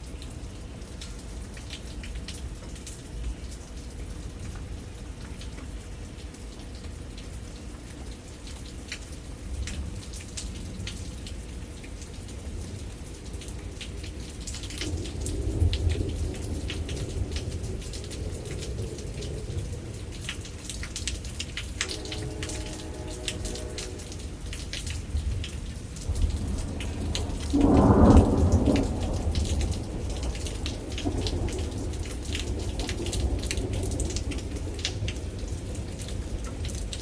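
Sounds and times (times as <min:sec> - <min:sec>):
rain drops ticking on hard surface: 0:00.0 - 0:37.0
thunder rumble: 0:13.6 - 0:37.0.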